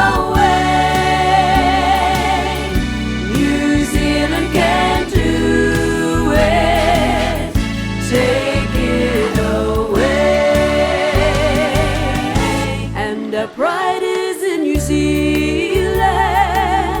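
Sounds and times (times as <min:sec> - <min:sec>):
instrumental backing music: 0:00.0 - 0:17.0
person singing with vibrato: 0:00.0 - 0:17.0.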